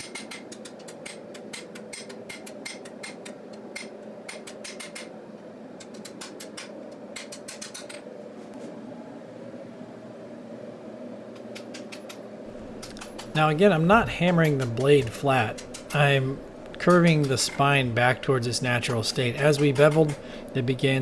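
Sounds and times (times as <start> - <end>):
steady hum: 0.0 - 21.0
hammer striking steel on anvil: 12.9 - 20.3.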